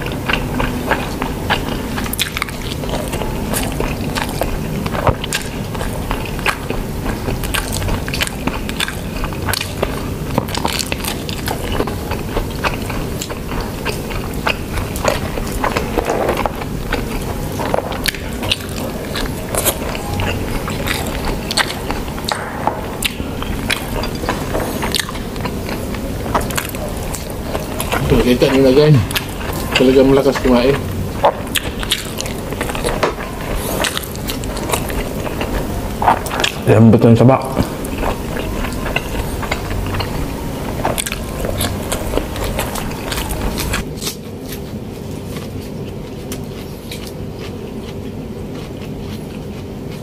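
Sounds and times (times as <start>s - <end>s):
chewing: 0.0s - 50.0s.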